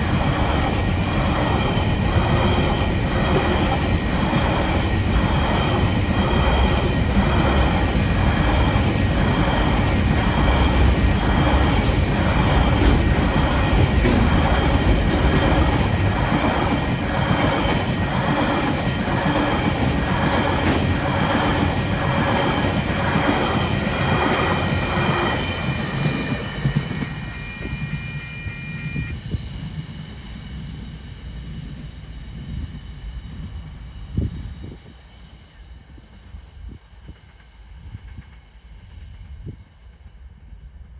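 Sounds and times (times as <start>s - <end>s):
train wheels clacking: 0.0s - 27.7s
freight train rumble: 0.0s - 40.9s
high ringing tones: 23.9s - 29.2s.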